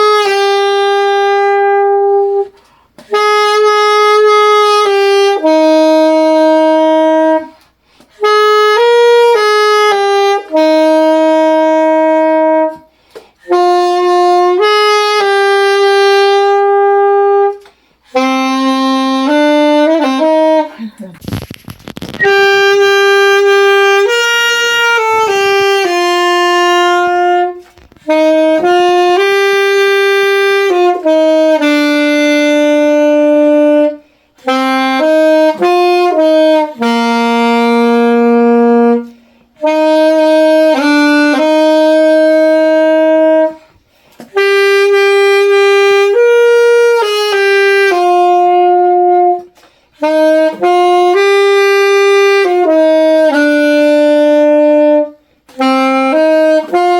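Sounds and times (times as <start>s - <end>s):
solo saxophone melody: 0.0s - 56.9s.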